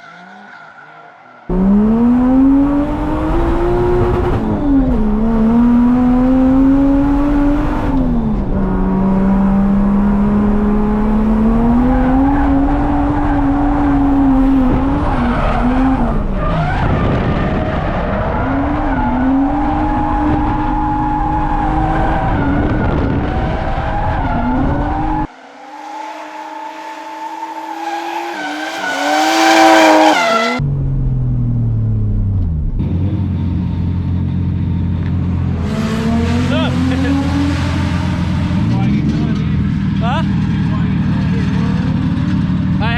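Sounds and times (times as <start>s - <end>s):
tyres skidding and squealing: 0.0s - 5.0s, 11.4s - 30.6s
car engine revving: 1.5s - 42.9s.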